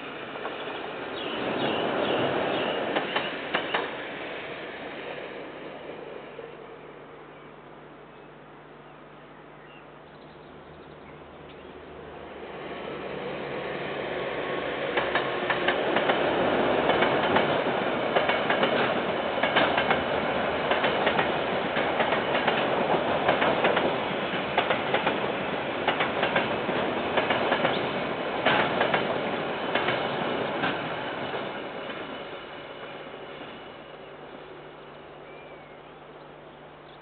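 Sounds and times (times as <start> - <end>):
wheels clicking over rail joints: 14.9 - 31.0.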